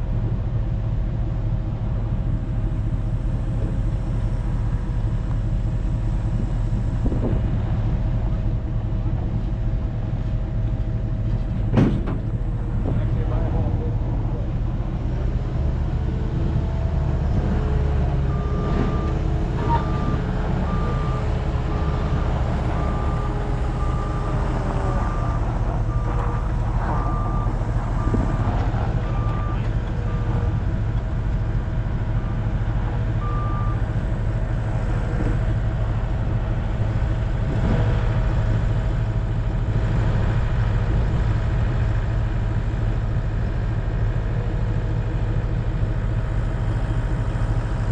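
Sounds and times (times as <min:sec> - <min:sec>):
low engine drone: 0:00.0 - 0:47.9
reversing alarm beeping: 0:18.2 - 0:30.5.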